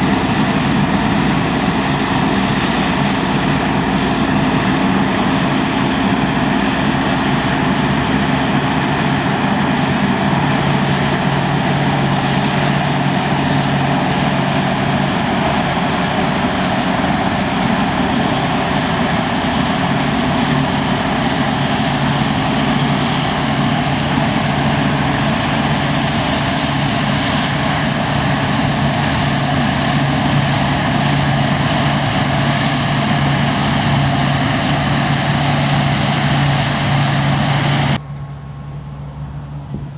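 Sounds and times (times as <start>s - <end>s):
combine harvester engine hum: 0.0s - 39.9s
machinery rushing noise: 0.0s - 39.9s.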